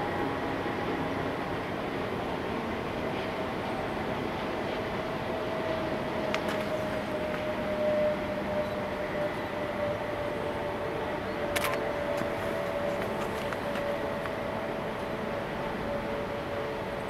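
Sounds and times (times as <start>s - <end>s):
constant rushing noise: 0.0s - 17.0s
distant train whine: 0.0s - 17.0s
sharp clicks: 11.5s - 12.4s.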